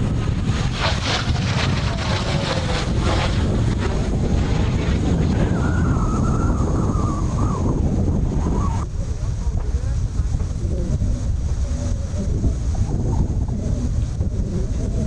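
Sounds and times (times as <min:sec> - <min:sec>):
distant jet turbofan whine: 0:00.0 - 0:15.0
high jet whine falling in pitch: 0:00.0 - 0:15.0
wind buffeting microphone: 0:00.0 - 0:15.0.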